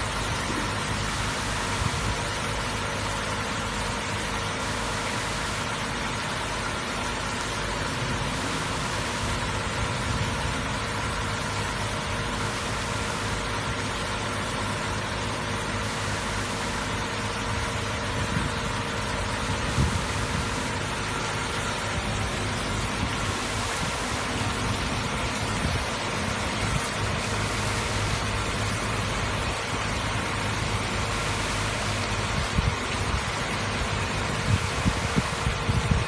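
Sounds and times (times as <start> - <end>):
constant hiss: 0.0 - 36.0
machine mechanical hum: 0.0 - 36.0.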